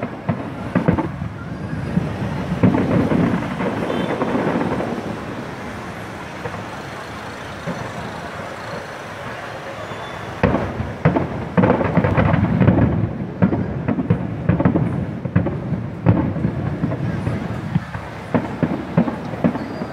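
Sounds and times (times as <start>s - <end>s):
fireworks bursting: 0.0s - 19.9s.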